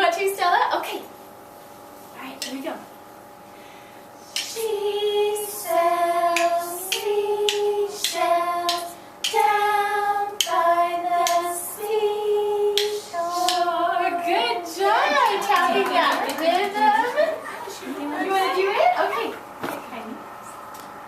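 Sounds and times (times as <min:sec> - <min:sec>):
woman and children singing: 0:04.3 - 0:19.0
rhythm sticks tapping: 0:06.3 - 0:09.6, 0:10.3 - 0:11.6, 0:12.7 - 0:13.8.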